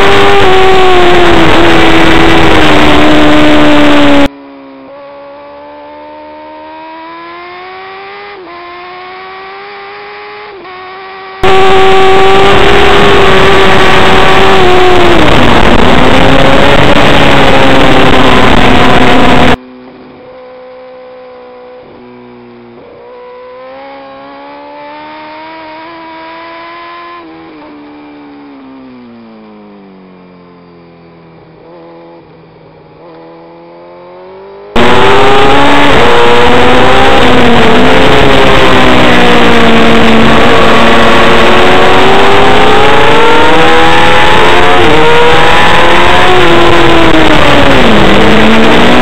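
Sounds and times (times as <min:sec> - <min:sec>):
loud wind roar: 0:00.0 - 0:04.3, 0:11.4 - 0:19.6, 0:34.7 - 0:49.0
motorcycle engine at high revs: 0:00.0 - 0:49.0.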